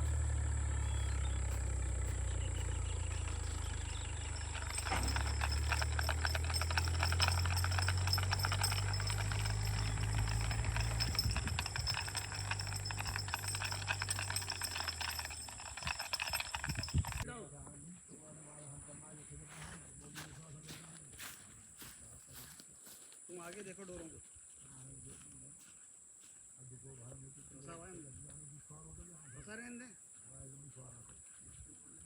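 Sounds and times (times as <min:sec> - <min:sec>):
vehicle engine humming: 0:00.0 - 0:17.2
dense rattling: 0:01.7 - 0:17.2.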